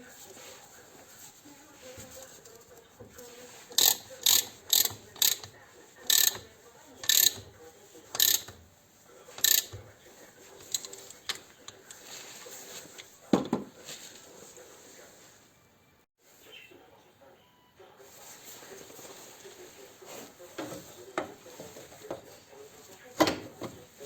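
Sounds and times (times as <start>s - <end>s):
ratchet metal clicks: 3.8s - 5.5s, 6.1s - 6.4s, 7.0s - 7.5s, 8.2s - 8.6s, 9.4s - 9.8s.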